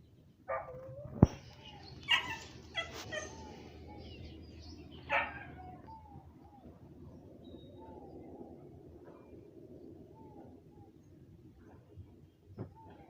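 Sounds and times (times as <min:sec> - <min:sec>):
dog barking: 0:00.5 - 0:00.9, 0:02.1 - 0:03.4, 0:05.1 - 0:05.6.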